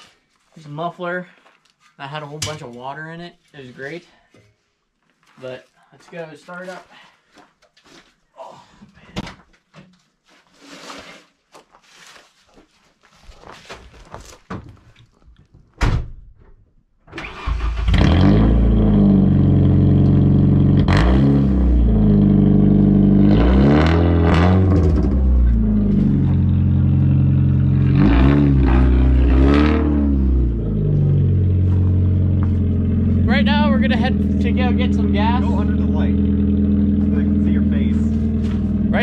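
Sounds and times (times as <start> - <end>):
car engine cranking and idling: 17.2 - 39.0
engine revving: 17.2 - 39.0.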